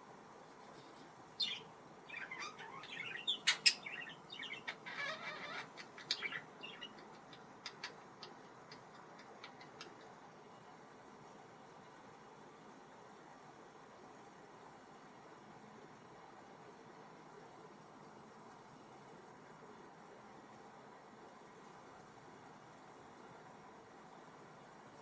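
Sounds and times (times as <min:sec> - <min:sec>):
budgerigar chattering chirps: 0:01.4 - 0:10.1.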